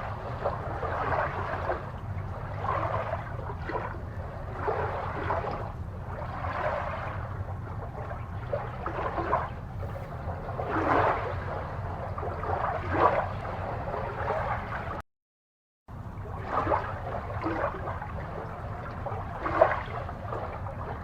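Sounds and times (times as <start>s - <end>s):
steady low hum: 0.0s - 15.0s, 15.9s - 21.0s
water gurgling and swishing: 0.0s - 15.0s, 15.9s - 21.0s.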